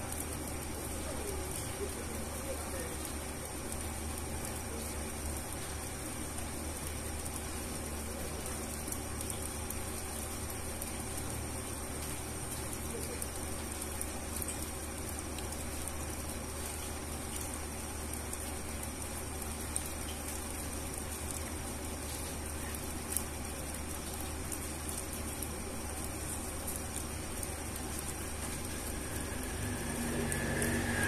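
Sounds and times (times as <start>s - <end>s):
rain on concrete pavement: 0.0s - 31.0s
steady low hum: 0.0s - 31.0s.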